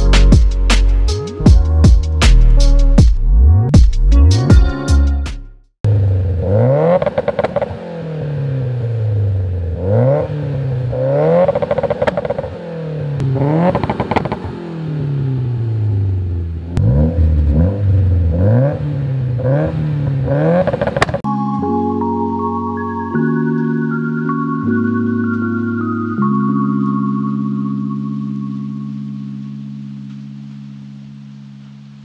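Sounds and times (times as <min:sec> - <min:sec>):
car engine revving: 0:05.9 - 0:21.2
exhaust popping and crackling: 0:06.9 - 0:07.8, 0:11.2 - 0:12.6, 0:13.2 - 0:14.8, 0:20.4 - 0:21.3.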